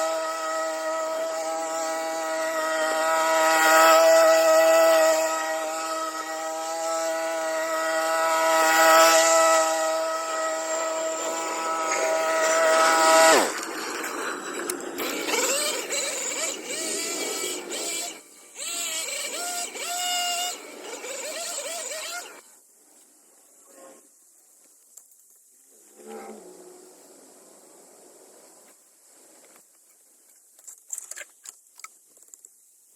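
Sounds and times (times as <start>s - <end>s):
hedge trimmer motor running: 0.0s - 22.5s.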